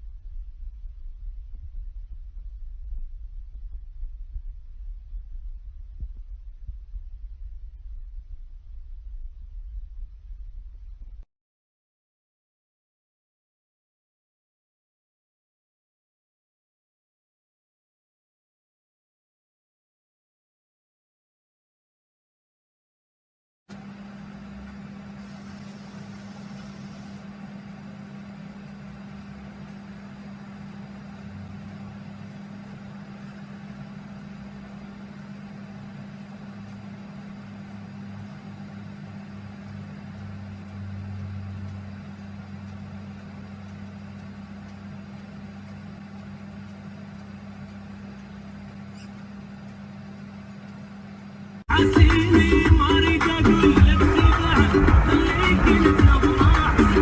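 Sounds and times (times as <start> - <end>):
constant low hum: 0.0 - 11.3, 23.7 - 57.0
car road and engine noise: 52.0 - 57.0.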